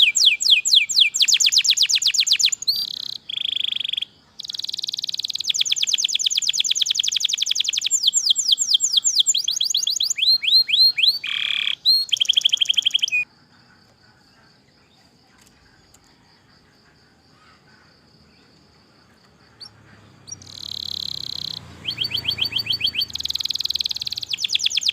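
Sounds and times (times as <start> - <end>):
canary trilling song: 0.0 - 13.3, 17.6 - 24.9.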